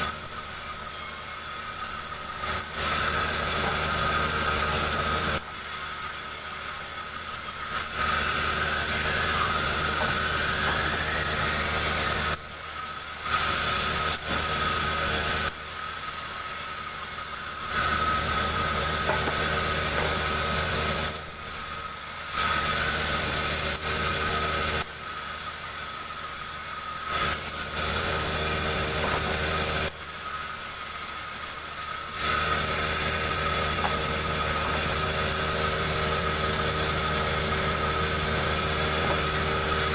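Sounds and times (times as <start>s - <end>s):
engine running steadily: 17.0s - 21.8s, 27.1s - 30.0s, 32.1s - 39.9s.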